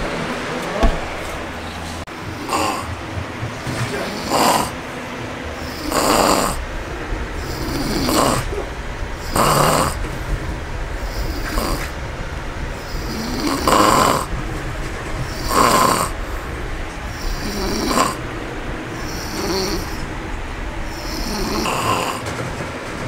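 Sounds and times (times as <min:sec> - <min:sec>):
dog snoring: 0:02.2 - 0:04.8, 0:05.6 - 0:06.7, 0:07.4 - 0:10.3, 0:11.0 - 0:12.0, 0:12.8 - 0:14.4, 0:15.2 - 0:18.3, 0:18.9 - 0:20.2, 0:20.8 - 0:22.4.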